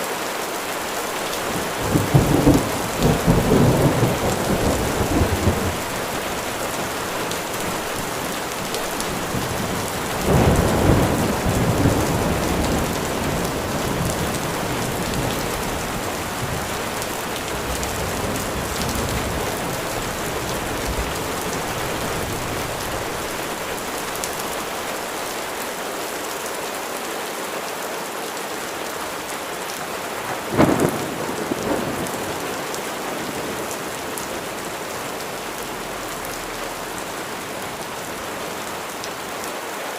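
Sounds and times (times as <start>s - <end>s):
rain falling: 0.0s - 39.9s
thunder rumble: 1.4s - 24.2s, 30.3s - 37.2s
sharp thunderclap: 30.4s - 32.6s.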